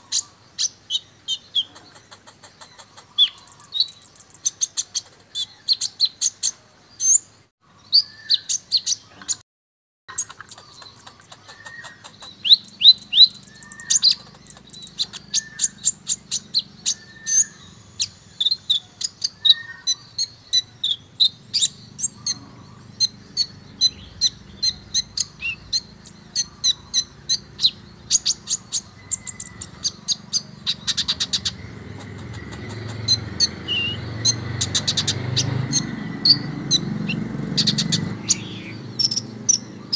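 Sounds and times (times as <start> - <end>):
bird chirps and trills: 0.0 - 9.4, 10.1 - 39.9.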